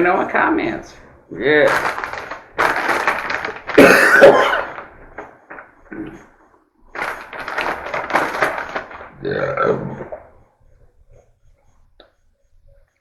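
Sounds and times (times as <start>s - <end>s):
person coughing: 3.7s - 4.8s.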